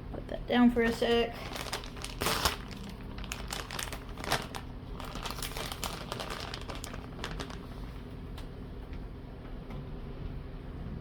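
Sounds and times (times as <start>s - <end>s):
plastic bag crinkling: 0.8s - 8.0s.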